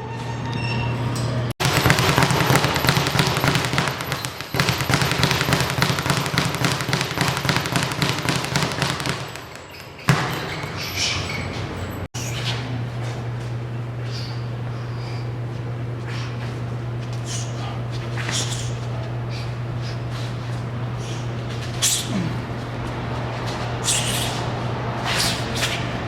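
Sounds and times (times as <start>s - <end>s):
punches thudding on boxing equipment: 1.6s - 10.7s.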